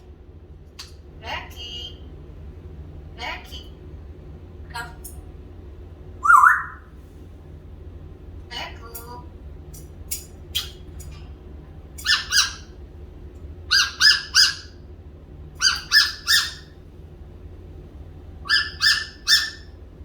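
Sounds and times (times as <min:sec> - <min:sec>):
parrot squawking: 0:06.2 - 0:06.9, 0:12.0 - 0:12.8, 0:13.7 - 0:14.8, 0:15.6 - 0:16.8, 0:18.4 - 0:19.8.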